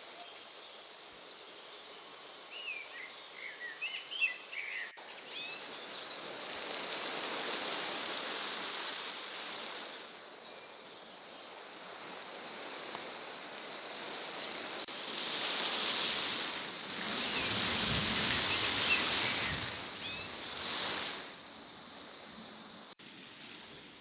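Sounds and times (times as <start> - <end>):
rain hissing on leaves: 5.0 - 23.7.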